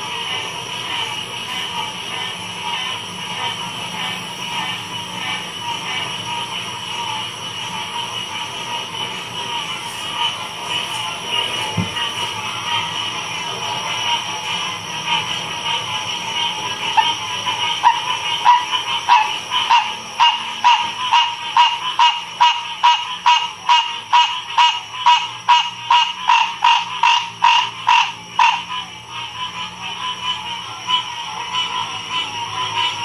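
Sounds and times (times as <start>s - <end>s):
chorus of frogs: 0.0s - 33.0s
frog calling close by: 16.9s - 28.8s.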